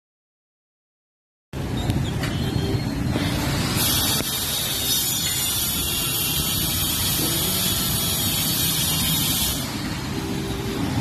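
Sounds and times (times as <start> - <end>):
vehicle rumble: 1.6 - 11.0
loud hiss: 3.5 - 9.9.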